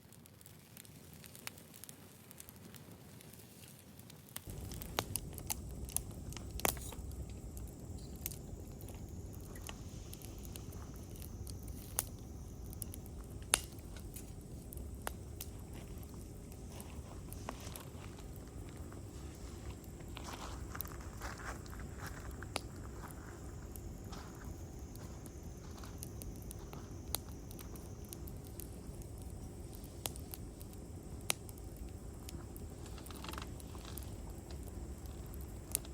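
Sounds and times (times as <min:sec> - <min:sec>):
campfire crackling and popping: 0:00.0 - 0:35.9
low rumble: 0:04.5 - 0:29.7.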